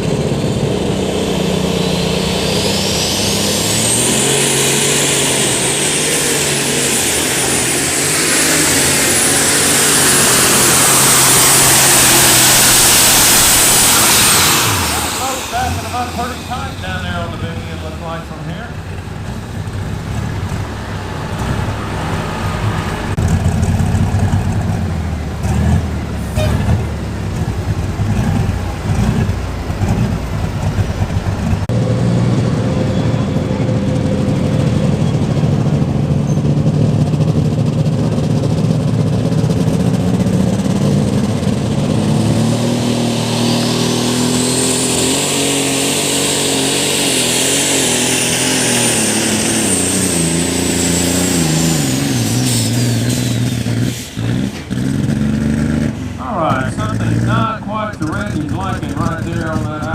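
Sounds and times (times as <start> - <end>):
high whine: 0.0 - 25.5, 55.9 - 59.9
tractor engine running hard: 0.0 - 59.9.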